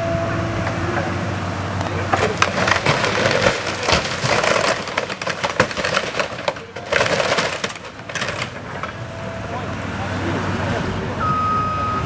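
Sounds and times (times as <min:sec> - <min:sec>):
wood splintering and cracking: 0:02.1 - 0:09.0.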